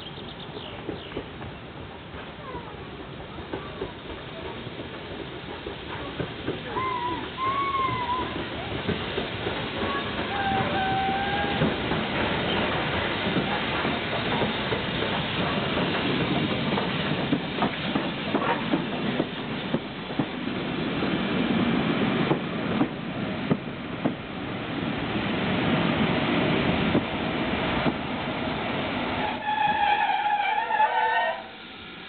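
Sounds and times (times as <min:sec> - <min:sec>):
train coaches rumbling past: 0:00.0 - 0:32.0
wheels clicking over rail joints: 0:00.6 - 0:01.6, 0:02.2 - 0:20.5.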